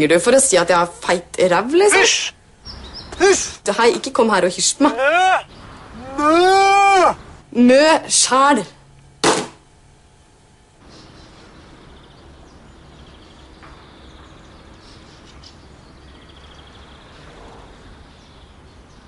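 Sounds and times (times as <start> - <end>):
small birds chirping trills: 1.8 - 4.3, 5.0 - 7.5, 10.1 - 19.0.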